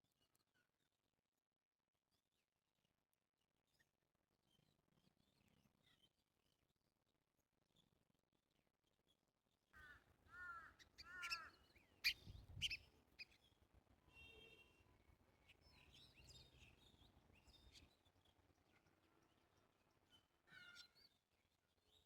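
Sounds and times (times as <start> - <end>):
wild birds calling: 9.8 - 12.8.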